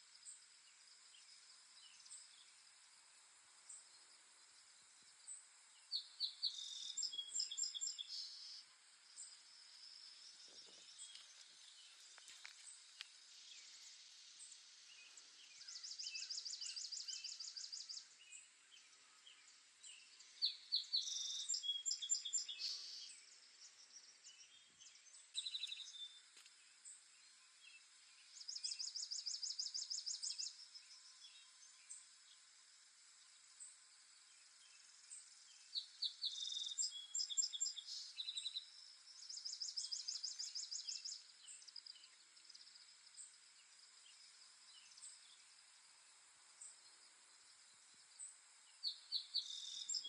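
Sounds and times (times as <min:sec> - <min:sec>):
faint background hiss: 0:00.0 - 0:50.0
birds chirping and singing: 0:06.0 - 0:08.6, 0:09.2 - 0:26.2, 0:35.5 - 0:42.2, 0:48.8 - 0:50.0.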